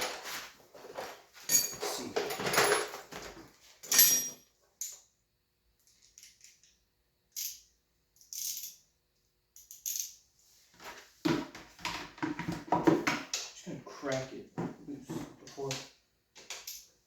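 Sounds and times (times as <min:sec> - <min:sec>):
metal hand tools clinking: 0:01.5 - 0:05.0.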